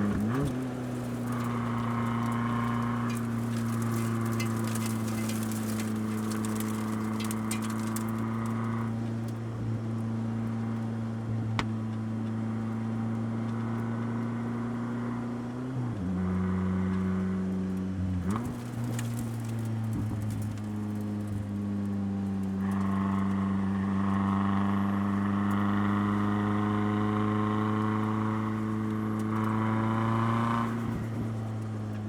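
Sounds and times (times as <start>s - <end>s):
race car engine revving: 0.0s - 8.8s.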